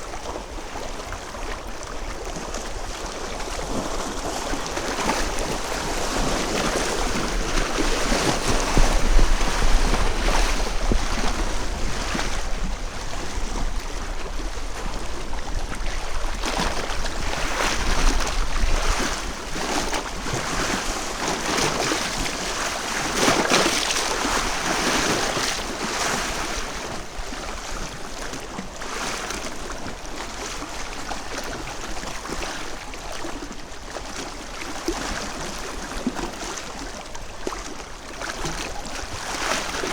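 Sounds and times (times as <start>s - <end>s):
small waves washing on a beach: 0.0s - 39.9s.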